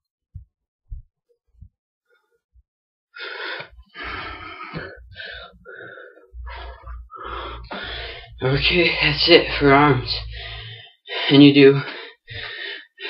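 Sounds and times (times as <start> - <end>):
person breathing hard: 3.2 - 13.0.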